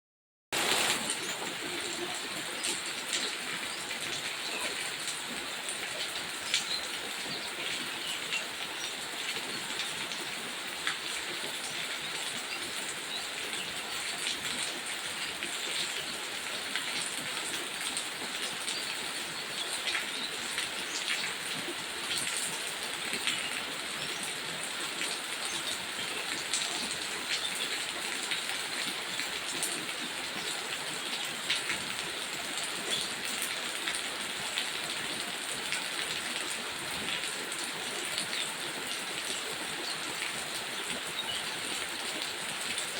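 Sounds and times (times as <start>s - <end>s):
rain falling on leaves: 0.5s - 42.9s.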